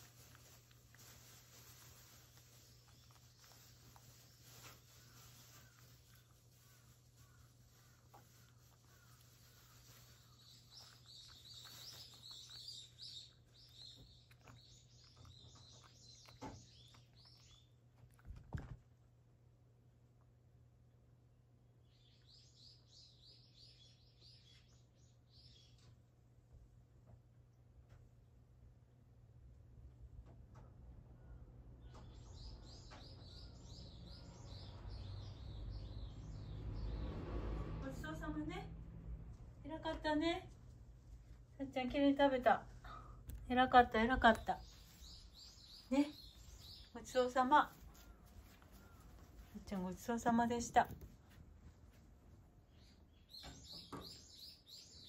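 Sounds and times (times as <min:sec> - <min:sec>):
low steady hum: 0:00.0 - 0:32.7.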